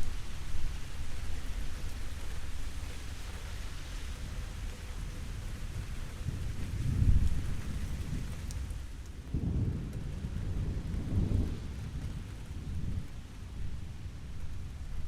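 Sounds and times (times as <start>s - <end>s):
steady rain: 0.0s - 15.0s
thunder rumbling: 5.7s - 15.0s.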